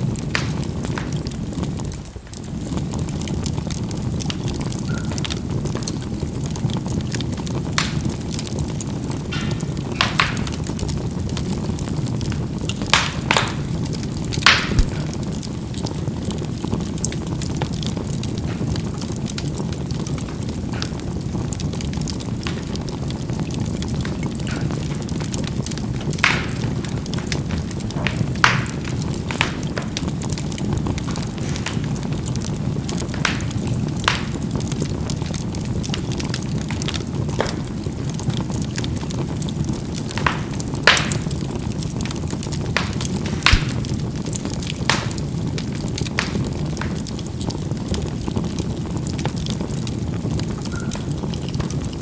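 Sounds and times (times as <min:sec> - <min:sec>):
charcoal fire crackling: 0:00.0 - 0:52.0
coals bursting pops: 0:00.0 - 0:52.0.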